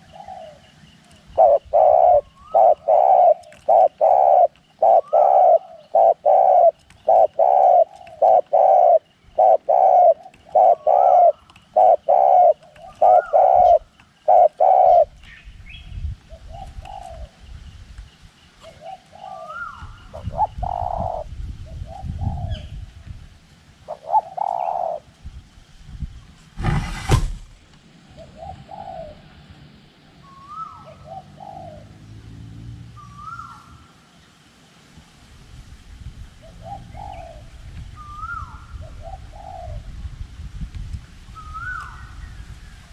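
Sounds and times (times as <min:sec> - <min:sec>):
dove cooing: 0:00.0 - 0:15.2, 0:16.3 - 0:17.4, 0:18.6 - 0:22.6, 0:23.9 - 0:25.1, 0:28.1 - 0:29.4, 0:30.3 - 0:32.0, 0:36.4 - 0:40.0
wind rumbling on microphone: 0:14.9 - 0:18.8, 0:19.5 - 0:31.2, 0:34.9 - 0:42.9
sharp knock: 0:26.6 - 0:27.5.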